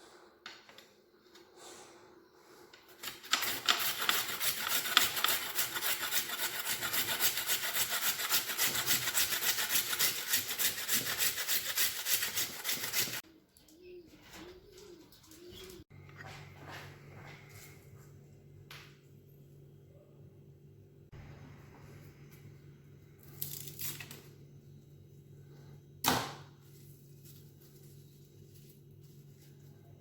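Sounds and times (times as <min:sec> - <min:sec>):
fast rasping scrape: 0:02.9 - 0:13.2.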